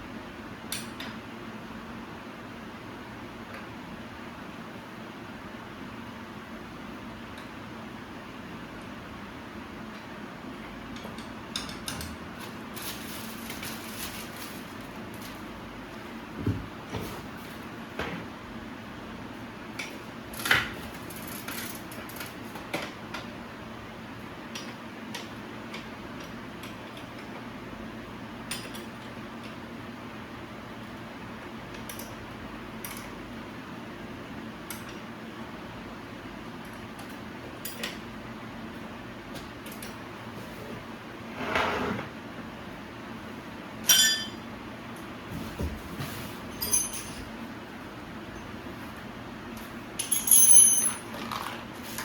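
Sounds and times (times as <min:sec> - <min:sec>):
steady low hum: 0:00.0 - 0:21.1
metal tools clinking: 0:43.8 - 0:44.4, 0:46.6 - 0:47.3, 0:50.0 - 0:51.6.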